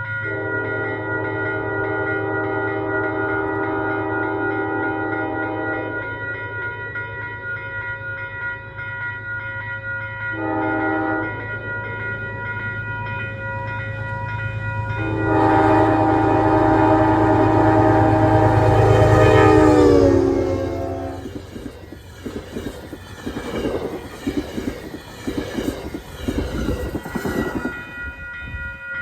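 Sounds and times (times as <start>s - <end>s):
train horn blasts: 0.3s - 6.0s, 10.4s - 11.4s, 14.9s - 21.5s.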